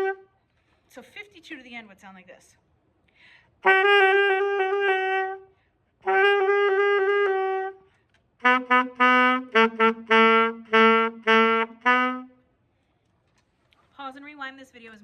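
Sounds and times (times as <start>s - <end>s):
saxophone playing: 0.0s - 0.4s, 3.6s - 12.4s
breath: 0.4s - 0.9s, 3.1s - 3.6s, 5.5s - 6.0s, 7.8s - 8.2s, 12.6s - 13.3s.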